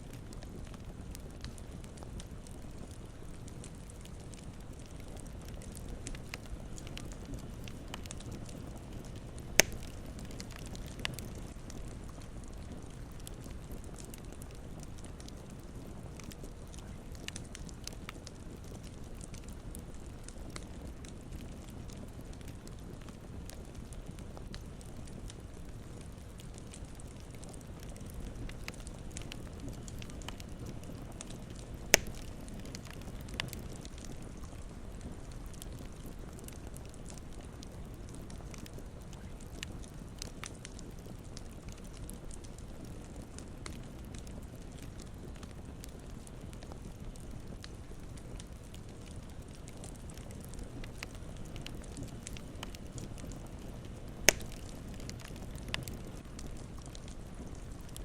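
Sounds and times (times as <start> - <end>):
campfire crackling: 0.0 - 58.0
sharp pop from fire: 9.6 - 9.9, 31.9 - 32.3, 54.3 - 54.6.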